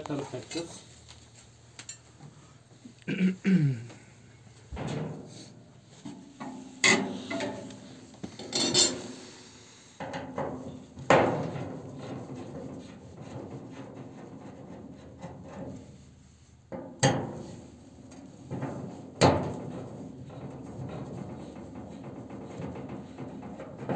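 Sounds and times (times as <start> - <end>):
metal stove parts clanking: 6.4 - 9.2.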